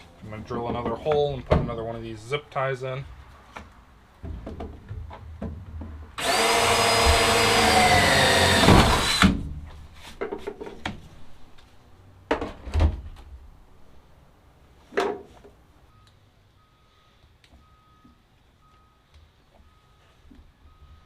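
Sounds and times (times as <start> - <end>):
power drill drilling: 6.2 - 9.4.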